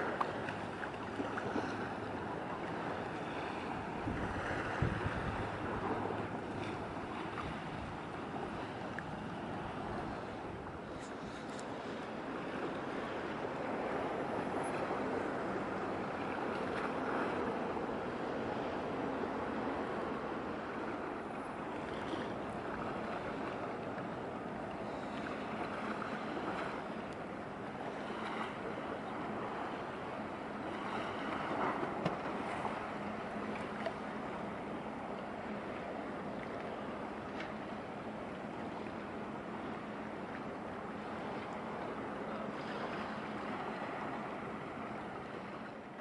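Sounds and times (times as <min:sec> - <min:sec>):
waves washing: 0:00.0 - 0:46.0
wind: 0:00.0 - 0:46.0.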